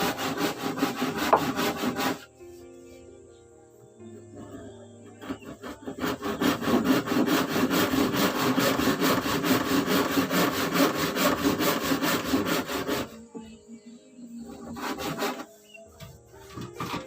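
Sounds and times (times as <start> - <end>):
hand saw cutting wood: 0.0 - 2.3, 5.1 - 13.4, 14.5 - 17.0.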